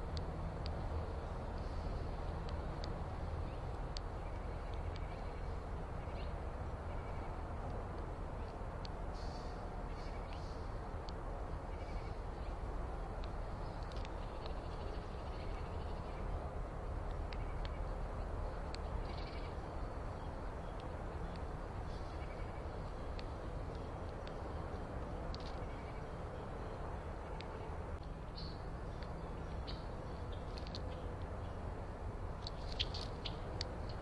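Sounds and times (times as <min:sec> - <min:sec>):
faint high ticks: 0:00.0 - 0:31.4
low background noise: 0:00.0 - 0:34.0
bird calls: 0:03.4 - 0:07.5, 0:09.2 - 0:10.7, 0:11.6 - 0:12.6, 0:13.6 - 0:16.4, 0:17.1 - 0:18.0, 0:18.8 - 0:24.4, 0:25.4 - 0:26.4, 0:27.2 - 0:31.6, 0:32.5 - 0:34.0.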